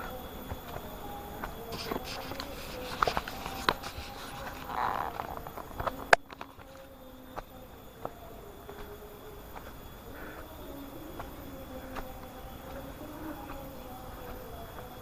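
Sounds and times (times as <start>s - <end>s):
footsteps on rough trail: 0.0s - 15.0s.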